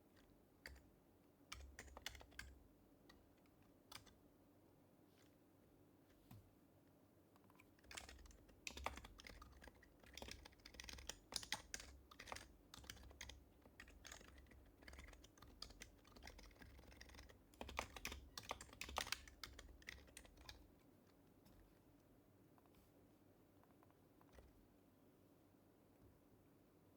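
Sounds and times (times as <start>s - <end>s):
soft keyboard typing: 0.0s - 4.2s, 7.3s - 22.9s, 23.5s - 24.7s.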